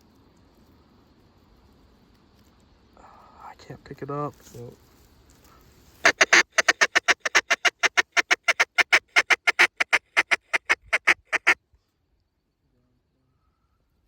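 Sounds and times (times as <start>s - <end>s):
raspy duck quacks: 6.0s - 11.6s.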